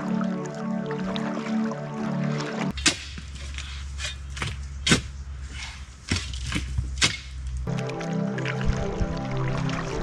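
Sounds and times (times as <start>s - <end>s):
music with sustained chords: 0.0s - 2.7s, 7.7s - 10.0s.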